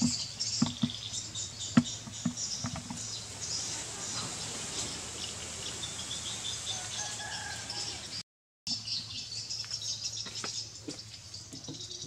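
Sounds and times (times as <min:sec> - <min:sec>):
high background hiss: 0:00.0 - 0:08.1.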